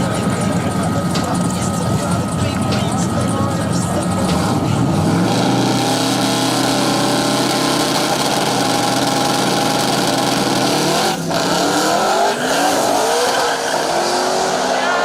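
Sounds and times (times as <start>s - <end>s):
drag racing car engine revving: 0.0s - 15.0s.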